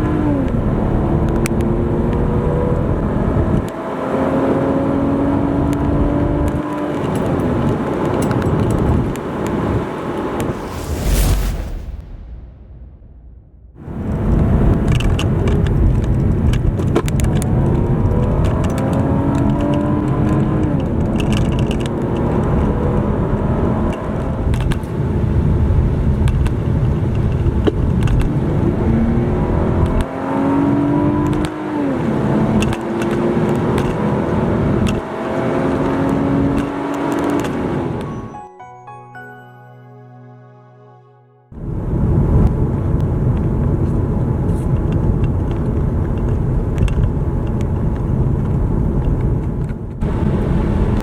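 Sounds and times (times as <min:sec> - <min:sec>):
car engine accelerating: 0:00.0 - 0:11.2, 0:28.2 - 0:38.1
road and wind noise: 0:00.0 - 0:38.1, 0:41.6 - 0:51.0.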